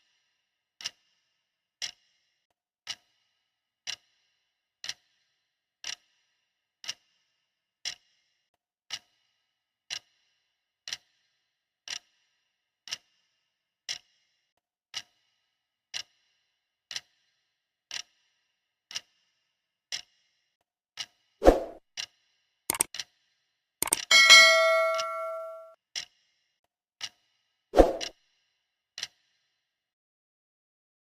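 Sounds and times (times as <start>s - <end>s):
clock ticking: 23.8s - 25.7s.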